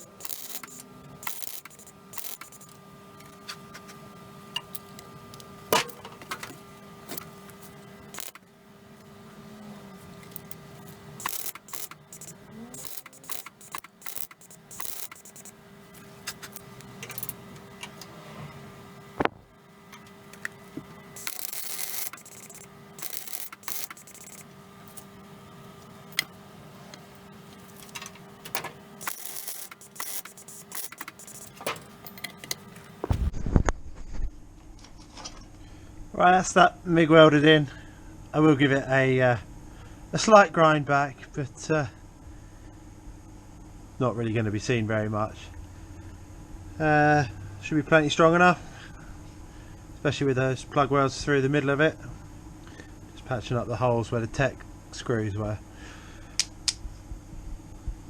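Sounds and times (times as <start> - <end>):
sharp clicks: 0.0 - 2.7, 8.1 - 8.4, 11.2 - 15.6, 21.2 - 25.1, 28.5 - 33.0
welder crackling hiss: 0.0 - 2.7, 8.1 - 8.4, 11.2 - 15.6, 21.2 - 25.1, 28.4 - 31.7
steady low hum: 0.0 - 58.0.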